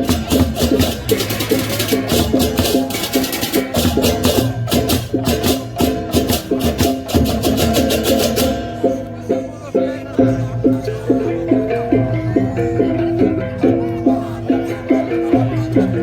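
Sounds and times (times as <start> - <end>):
clashing cymbals: 0.0 - 9.2
interlocking metallic tones: 0.0 - 9.6
drumming: 0.0 - 12.2.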